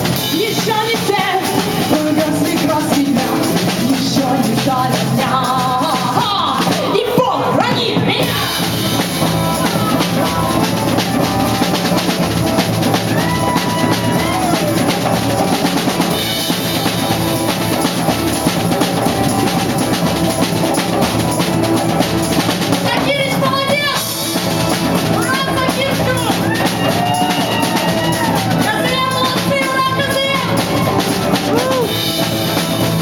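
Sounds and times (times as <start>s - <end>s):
bass drum and snare beat: 0.0s - 33.0s
rock band instrumental: 0.0s - 33.0s.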